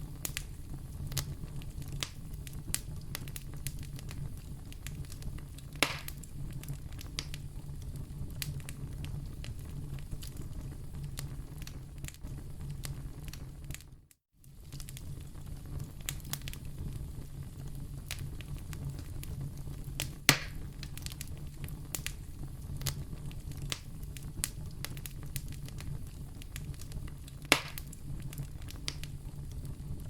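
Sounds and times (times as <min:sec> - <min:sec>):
fire crackling in a fireplace: 0:00.0 - 0:30.0
fire pop with short hiss: 0:05.8 - 0:06.2, 0:20.0 - 0:20.6, 0:27.4 - 0:28.0.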